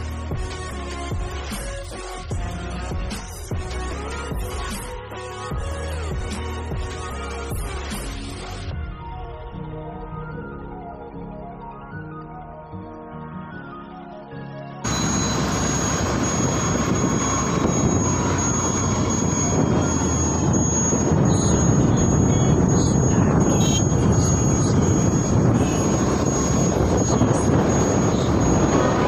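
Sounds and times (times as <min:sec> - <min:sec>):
background music: 0:00.0 - 0:29.0
engine noise: 0:14.9 - 0:29.0
road noise: 0:14.9 - 0:29.0
wind noise: 0:14.9 - 0:29.0.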